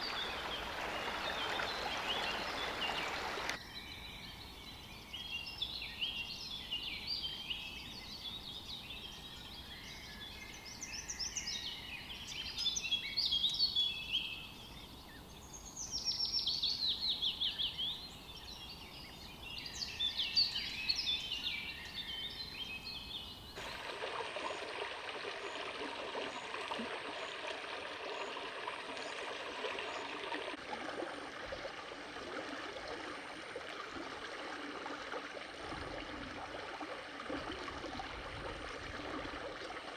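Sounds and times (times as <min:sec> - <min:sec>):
stream water rushing: 0:00.0 - 0:03.6, 0:23.6 - 0:39.9
birds singing: 0:00.0 - 0:23.8.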